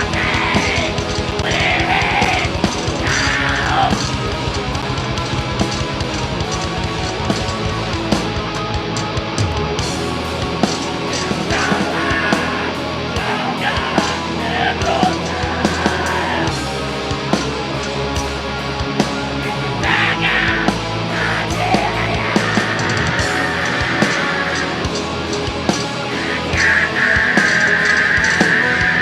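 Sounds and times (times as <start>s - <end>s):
harsh yelled vocals: 0.0s - 4.7s, 11.1s - 16.9s, 19.7s - 29.0s
metal band playing: 0.0s - 29.0s.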